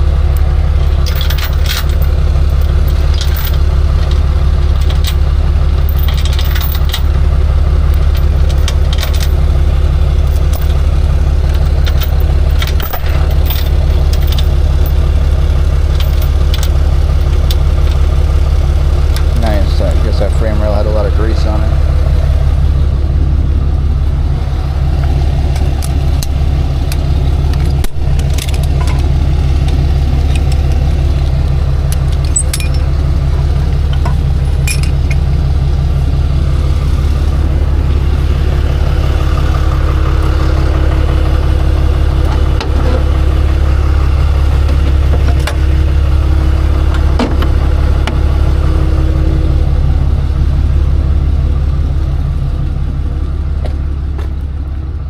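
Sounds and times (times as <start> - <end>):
steady higher hum: 0.0 - 55.0
truck engine running: 0.0 - 55.0
clicks and clanks: 0.8 - 5.2, 5.8 - 7.1, 7.9 - 9.4, 10.2 - 10.8, 11.4 - 15.0, 15.9 - 18.0, 25.5 - 32.9, 33.7 - 35.3, 44.5 - 45.6.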